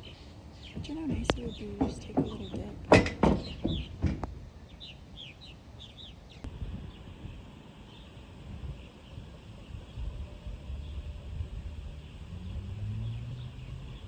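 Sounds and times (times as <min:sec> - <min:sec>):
small birds chirping: 0:00.0 - 0:07.1, 0:07.9 - 0:14.0
low wind rumble: 0:00.0 - 0:14.0
soft knocks: 0:00.7 - 0:04.4.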